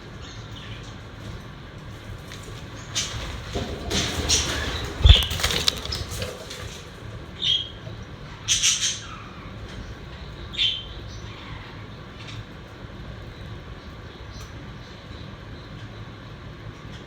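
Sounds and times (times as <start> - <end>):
budgerigars fluttering: 2.0 - 7.7.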